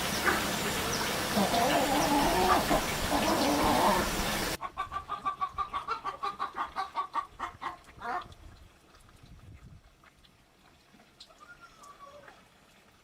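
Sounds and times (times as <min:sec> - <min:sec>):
chicken clucking: 0:00.2 - 0:08.3.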